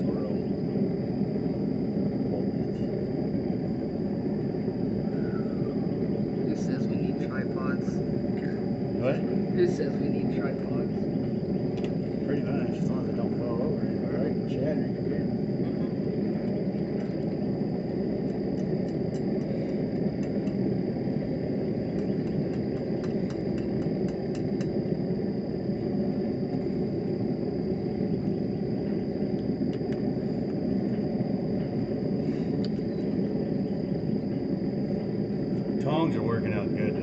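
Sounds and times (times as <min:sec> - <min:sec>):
forge roaring: 0:00.0 - 0:37.0.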